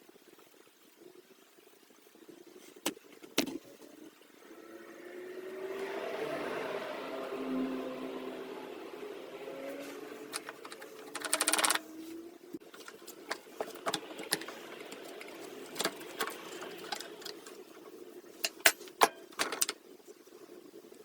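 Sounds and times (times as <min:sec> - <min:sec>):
rapid rattle: 0:10.3 - 0:11.9
tools and metal parts clicking: 0:10.3 - 0:11.9, 0:12.8 - 0:17.6, 0:18.4 - 0:19.8.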